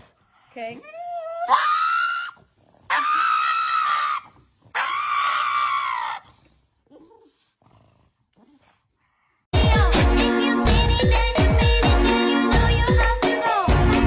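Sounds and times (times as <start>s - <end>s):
long high-pitched screams: 1.5s - 6.2s.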